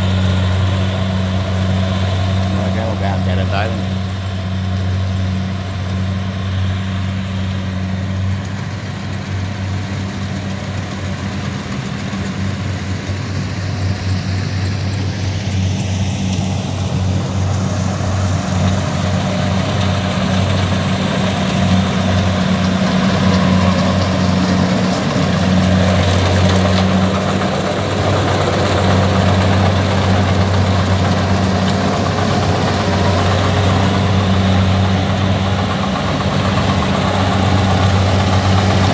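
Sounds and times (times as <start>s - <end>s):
diesel engine humming: 0.0s - 38.9s.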